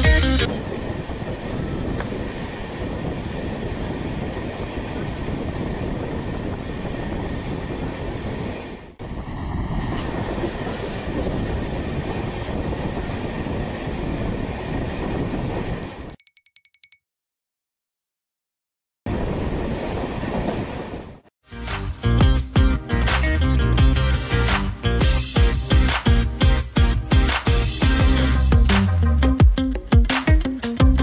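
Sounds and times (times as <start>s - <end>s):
train wheels rumbling on track: 0.2s - 16.1s.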